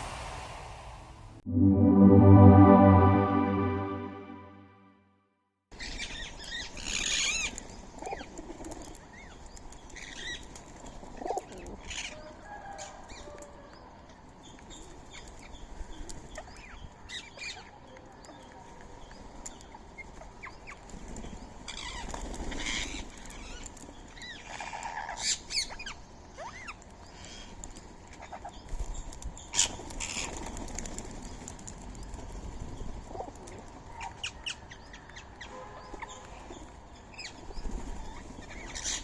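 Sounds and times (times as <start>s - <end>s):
birds' wings flapping: 20.8s - 23.9s, 28.7s - 33.5s.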